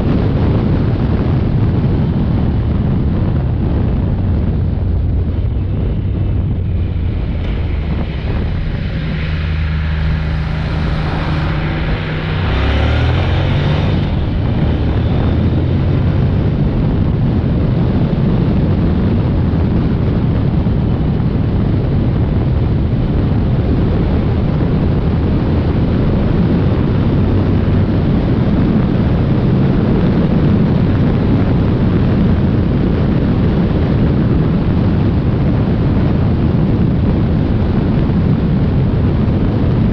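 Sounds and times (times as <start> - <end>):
wind rush on microphone: 0.0 - 39.9
motorcycle engine running: 0.8 - 29.1.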